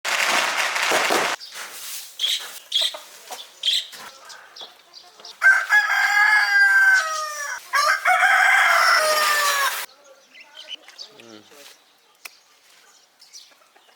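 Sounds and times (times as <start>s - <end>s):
chickens clucking: 2.2s - 6.0s
rooster crowing: 5.4s - 9.9s.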